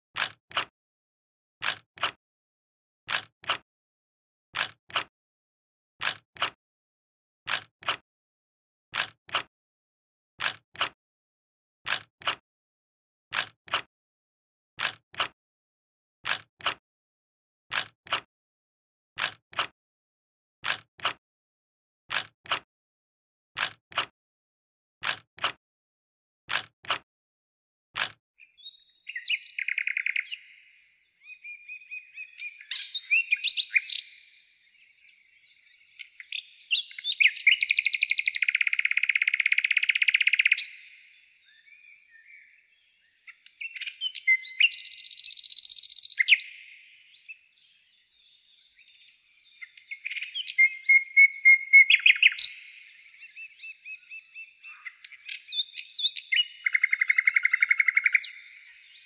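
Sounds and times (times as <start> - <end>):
small birds chirping: 28.4 - 59.0.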